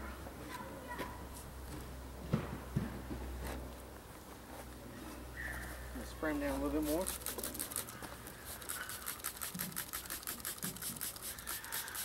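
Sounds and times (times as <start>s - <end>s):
spray bottle squirts: 6.8s - 12.0s.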